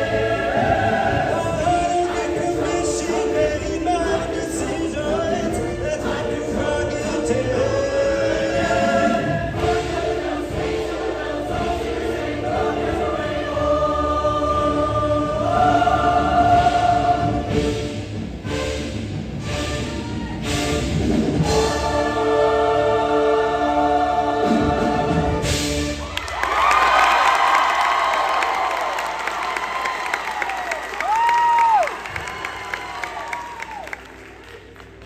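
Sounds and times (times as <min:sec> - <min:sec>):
choir singing held chords: 0:00.0 - 0:18.8, 0:20.5 - 0:26.0.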